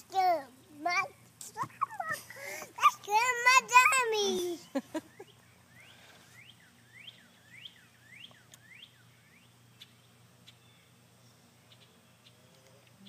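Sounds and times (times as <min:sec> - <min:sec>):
faint bird chirps: 0:05.0 - 0:13.0.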